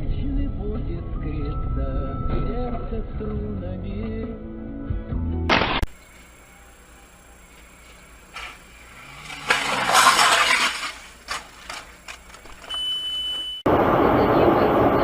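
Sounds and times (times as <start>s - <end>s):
vehicle engine: 5.9s - 12.8s
high-pitched beep: 12.7s - 15.0s.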